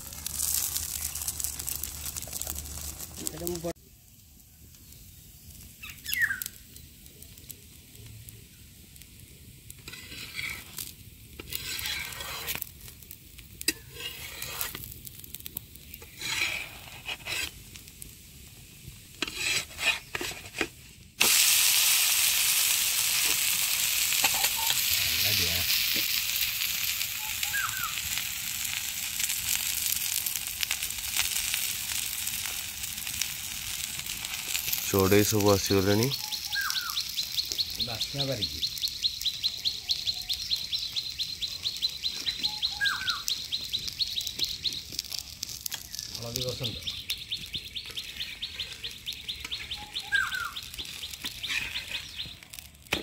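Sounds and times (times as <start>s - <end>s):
loud steady sizzle: 0.0s - 53.0s
metal spatula scraping: 9.8s - 12.7s, 13.7s - 14.9s, 16.0s - 17.6s, 19.2s - 20.8s, 51.4s - 52.2s.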